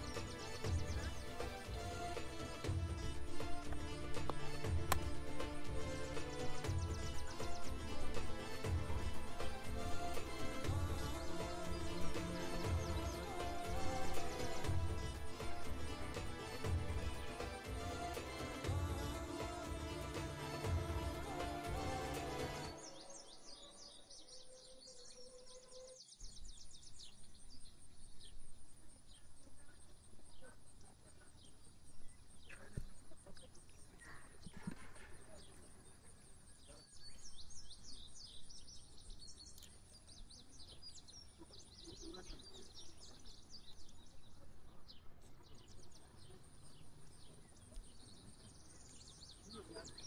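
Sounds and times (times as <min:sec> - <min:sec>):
birds chirping and singing: 0:00.0 - 0:50.0.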